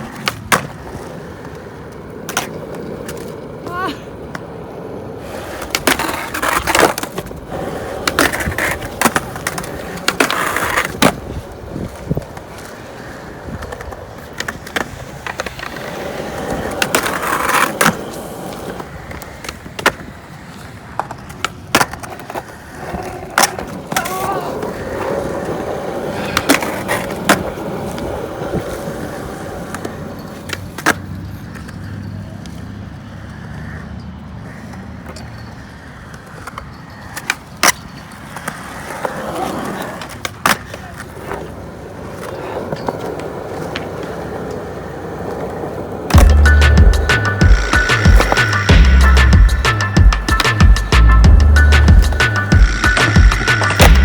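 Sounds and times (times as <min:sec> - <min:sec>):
skateboard wheels rolling on concrete: 0:00.0 - 0:54.0
skateboards clacking: 0:00.0 - 0:54.0.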